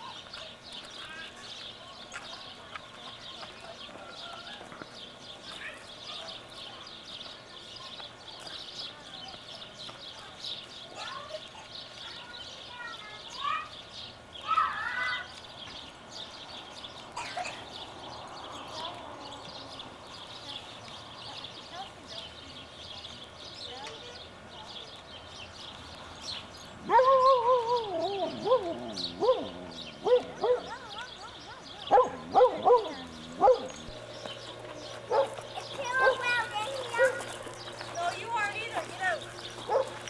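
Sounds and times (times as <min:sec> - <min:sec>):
dog whining and yelping: 0:26.8 - 0:30.9, 0:31.9 - 0:33.9.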